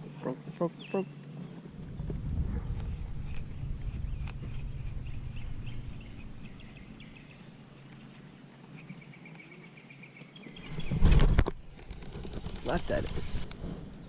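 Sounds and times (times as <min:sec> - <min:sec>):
low rumble: 0:01.7 - 0:07.8
small animal chirping: 0:02.8 - 0:08.0.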